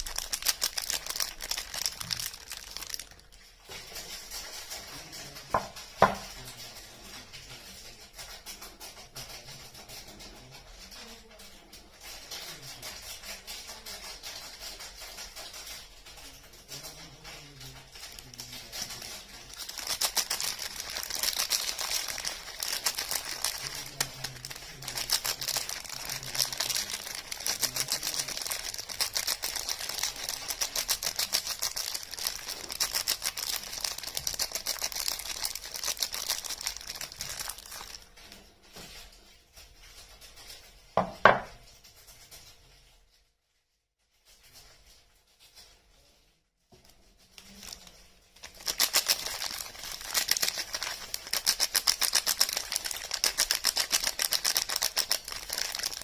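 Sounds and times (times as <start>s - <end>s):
packaging crinkling and tearing: 0.0s - 6.6s, 14.4s - 39.1s, 47.2s - 56.0s.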